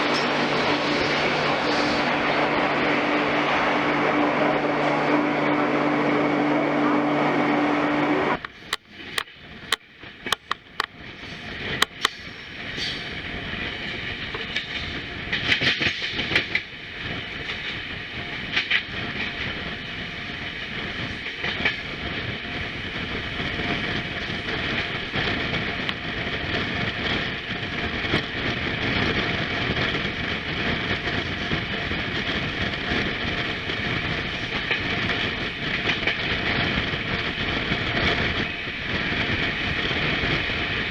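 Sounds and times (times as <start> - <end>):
train rumble and hiss: 0.0 - 40.9
train wheels clicking over rail joints: 8.4 - 40.8.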